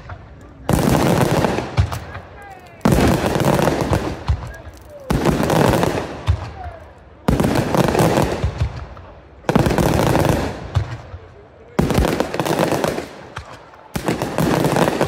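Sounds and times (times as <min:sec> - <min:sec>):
crackling firework reports: 0:00.0 - 0:15.0.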